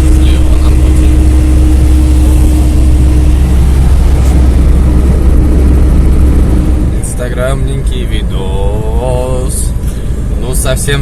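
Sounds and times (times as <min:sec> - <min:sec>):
road and engine noise in car: 0:00.0 - 0:11.0.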